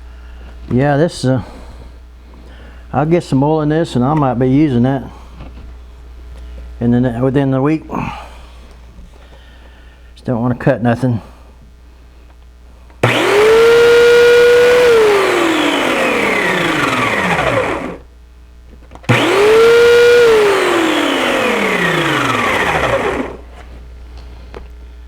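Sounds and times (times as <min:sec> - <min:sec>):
electric chainsaw motor whining: 0:13.0 - 0:18.1, 0:19.1 - 0:23.6.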